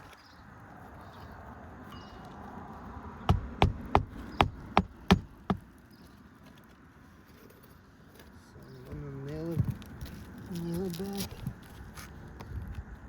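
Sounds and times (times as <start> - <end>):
hammer striking a nail: 3.3 - 5.6.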